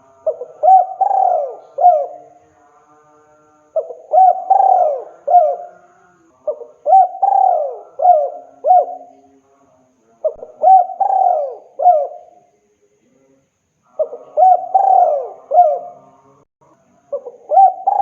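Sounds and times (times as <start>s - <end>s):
dove cooing: 0.0s - 2.4s, 3.8s - 9.2s, 10.2s - 12.4s, 14.0s - 16.2s, 17.1s - 18.0s.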